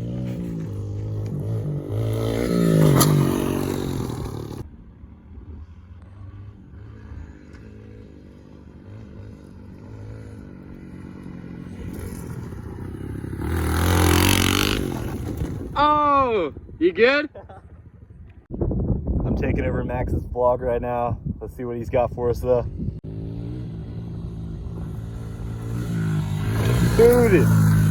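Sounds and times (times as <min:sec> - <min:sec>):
motorbike engine revving: 0:00.0 - 0:04.7, 0:06.0 - 0:15.8, 0:23.0 - 0:27.9.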